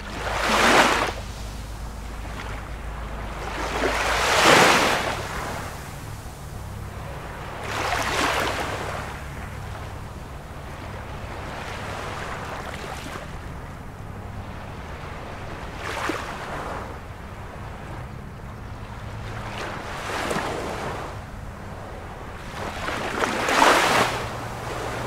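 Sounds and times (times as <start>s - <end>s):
low rumble: 0.0s - 15.9s
ocean waves washing: 0.0s - 25.0s.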